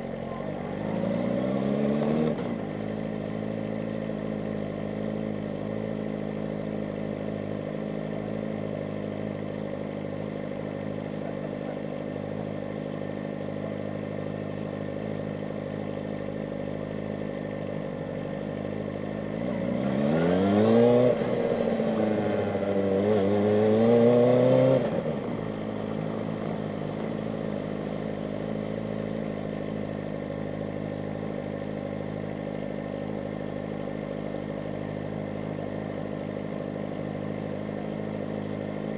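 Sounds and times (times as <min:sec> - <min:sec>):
motorcycle engine revving: 0:00.0 - 0:09.5, 0:18.6 - 0:38.9.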